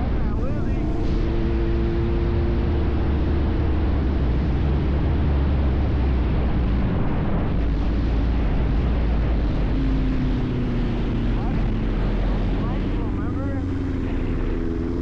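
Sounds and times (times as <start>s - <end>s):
motorcycle engine rumbling: 0.0s - 15.0s
road noise: 0.0s - 15.0s.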